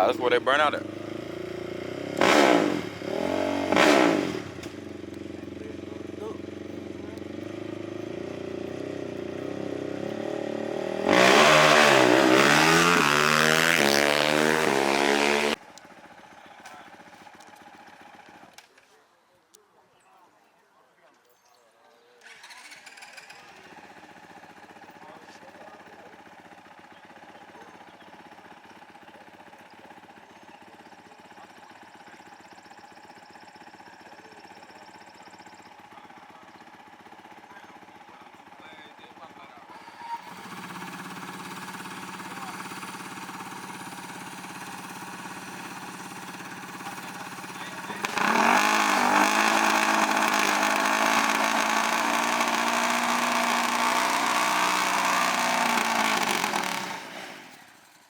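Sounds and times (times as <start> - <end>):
small engine running: 0.0 - 18.6, 22.2 - 58.0
small engine revving hard: 1.0 - 4.8, 9.5 - 15.6, 22.2 - 24.0, 39.7 - 58.0.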